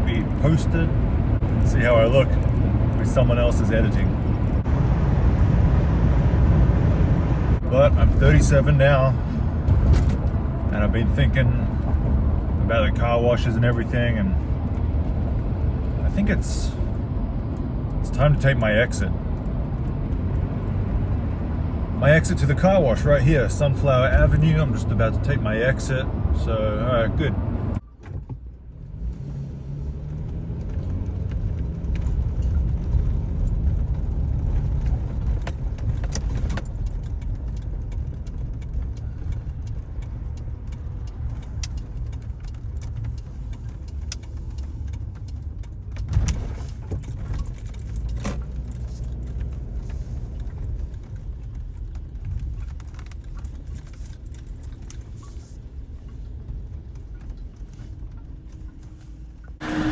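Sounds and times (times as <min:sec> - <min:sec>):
truck road and engine rumble: 0:00.0 - 0:59.9
light rattling and clicks: 0:30.6 - 0:59.1.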